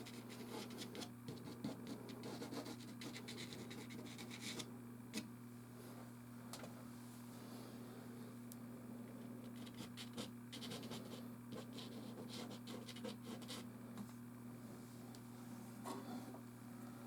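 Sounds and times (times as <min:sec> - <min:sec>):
pastel stick scratching canvas: 0:00.0 - 0:04.7, 0:09.5 - 0:13.7
low steady hum: 0:00.0 - 0:17.0.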